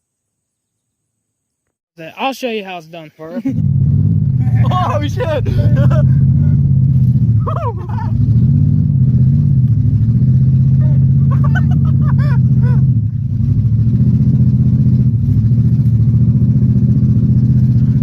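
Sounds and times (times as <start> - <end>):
car engine running at high revs: 3.4 - 18.0
voices shouting: 4.4 - 6.6, 7.4 - 8.2, 10.7 - 12.9.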